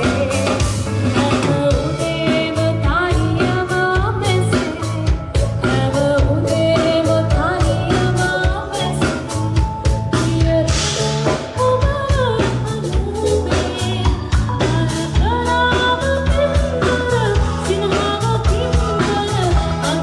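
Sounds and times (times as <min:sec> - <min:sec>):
bass: 0:00.0 - 0:20.0
drum kit beat: 0:00.0 - 0:20.0
woman singing: 0:00.0 - 0:20.0.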